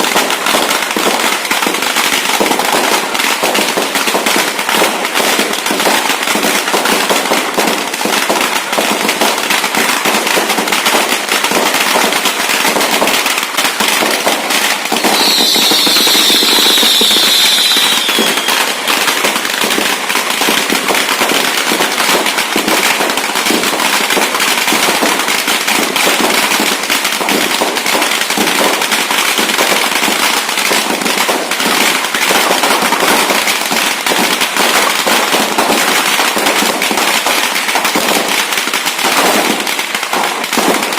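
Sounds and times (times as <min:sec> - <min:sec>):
firecrackers crackling and popping: 0:00.0 - 0:40.9
high whistle sliding down: 0:15.0 - 0:18.9.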